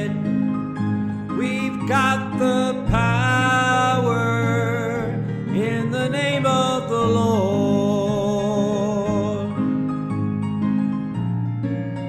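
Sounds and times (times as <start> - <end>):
person singing: 0.0 - 0.4, 1.3 - 9.8
plucked guitar: 0.0 - 12.0.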